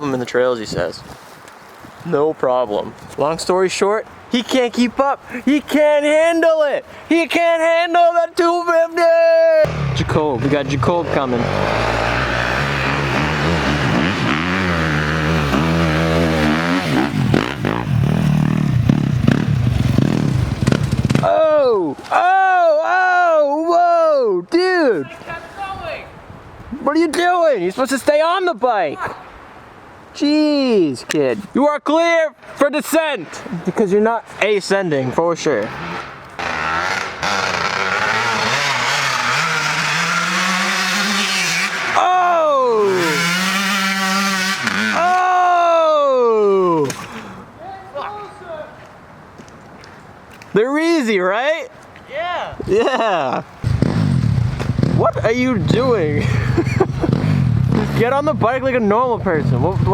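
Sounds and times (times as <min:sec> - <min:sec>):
dirt bike engine revving: 0:09.6 - 0:21.4, 0:35.6 - 0:45.3, 0:53.6 - 0:59.9.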